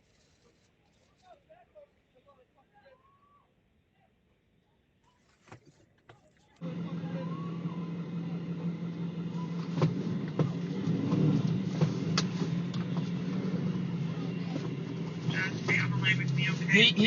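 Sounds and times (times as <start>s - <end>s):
vehicle engine running: 6.6s - 17.0s.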